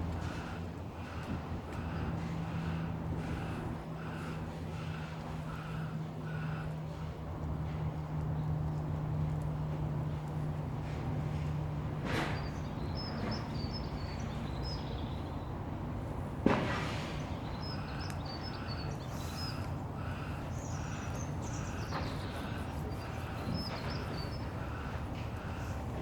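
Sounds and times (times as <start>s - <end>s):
factory low hum: 0.0s - 26.0s
small birds chirping: 12.2s - 15.6s, 17.2s - 26.0s.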